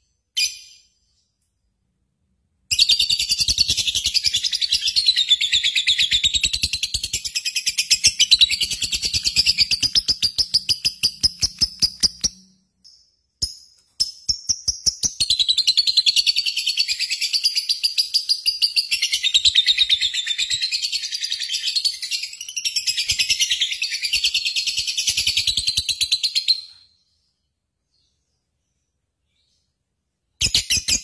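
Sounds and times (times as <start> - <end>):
bird chirping trill: 2.7 - 27.2.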